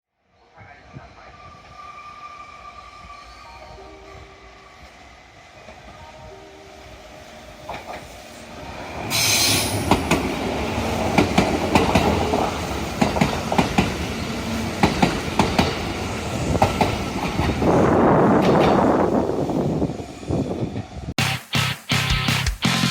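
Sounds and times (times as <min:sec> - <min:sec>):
loud train hiss: 0:07.2 - 0:16.6
train wheels clacking over rail joints: 0:11.0 - 0:14.1, 0:14.8 - 0:15.8.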